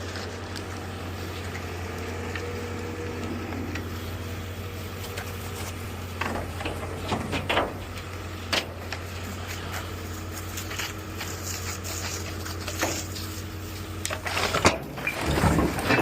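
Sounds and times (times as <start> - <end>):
heavy machine engine running: 0.0 - 16.0
debris cracking and knocking: 14.1 - 16.0.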